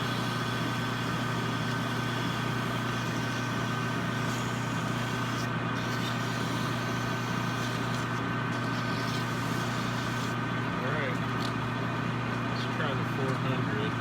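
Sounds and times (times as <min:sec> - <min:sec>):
sandpaper hissing on spinning steel: 0:00.0 - 0:10.4
lathe motor humming: 0:00.0 - 0:14.0.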